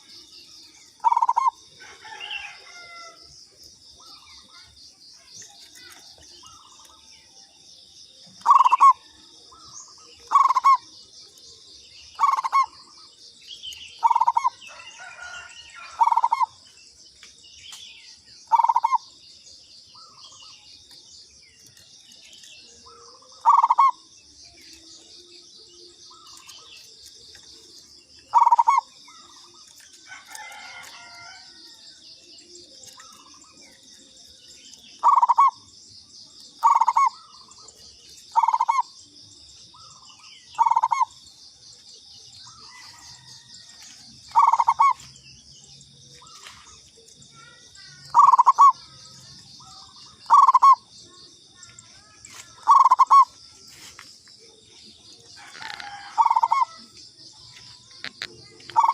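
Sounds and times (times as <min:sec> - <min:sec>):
faint chirps: 0:00.0 - 0:58.9
dove cooing: 0:08.4 - 0:09.1, 0:10.2 - 0:10.9, 0:12.2 - 0:12.8, 0:14.0 - 0:15.2, 0:15.9 - 0:16.6, 0:22.9 - 0:24.0, 0:28.3 - 0:29.6, 0:35.0 - 0:35.6, 0:36.6 - 0:38.9, 0:40.6 - 0:41.1, 0:44.3 - 0:45.0, 0:47.8 - 0:48.8, 0:49.6 - 0:50.8, 0:52.6 - 0:53.3, 0:55.4 - 0:56.8, 0:58.7 - 0:58.9.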